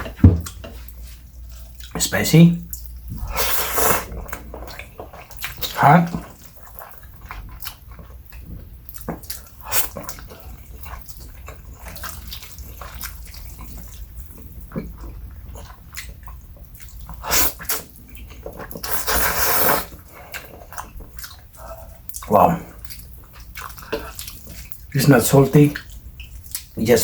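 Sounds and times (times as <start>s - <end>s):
wet chewing and mouth smacks: 2.6s - 25.0s, 25.7s - 26.8s
noodle slurp: 3.2s - 6.4s, 17.1s - 17.9s, 18.6s - 20.1s.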